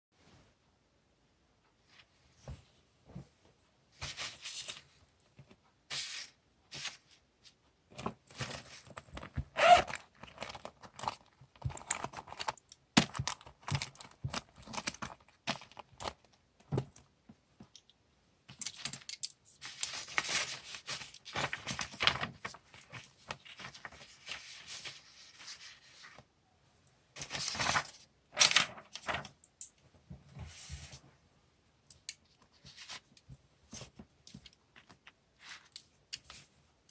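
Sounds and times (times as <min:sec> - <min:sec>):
paper rustling and tearing: 0:19.6 - 0:26.2, 0:27.2 - 0:29.3.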